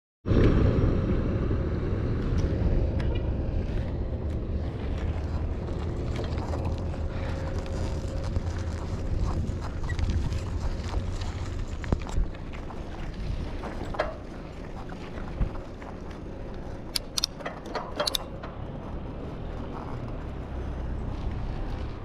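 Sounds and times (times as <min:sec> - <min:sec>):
wind rumbling on microphone: 0:00.3 - 0:22.0
bicycle tyres rolling: 0:02.0 - 0:22.0
bike clicks and rattles: 0:02.3 - 0:22.0.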